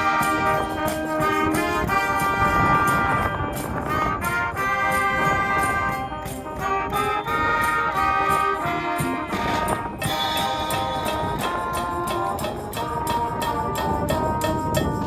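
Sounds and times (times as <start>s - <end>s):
brass melody: 0.0s - 15.0s
percussion beat: 0.0s - 15.0s
wind band playing: 0.0s - 15.0s.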